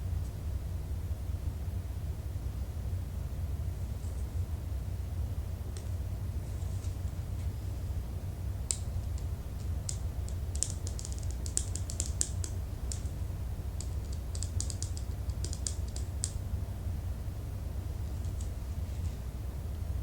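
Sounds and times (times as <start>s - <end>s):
typing on computer keyboard: 9.9s - 13.1s, 13.8s - 16.4s.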